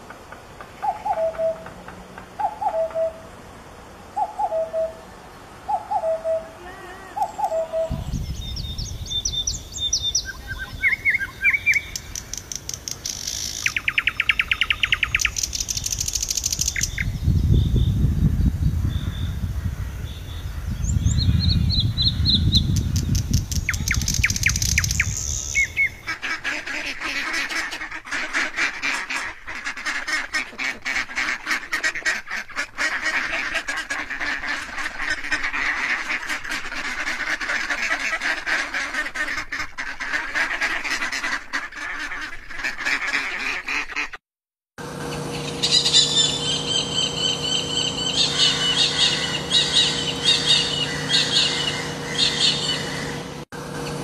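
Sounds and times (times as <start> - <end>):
bird calls and chirps: 0.6 - 3.3, 4.1 - 6.6, 7.2 - 26.1, 45.1 - 53.3.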